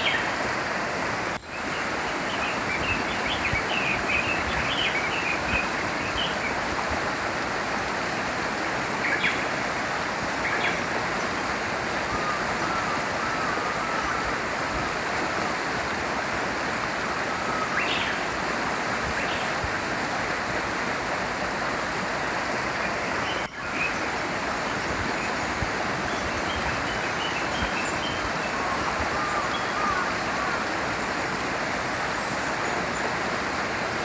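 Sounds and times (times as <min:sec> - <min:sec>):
brook flowing: 0:00.0 - 0:34.0.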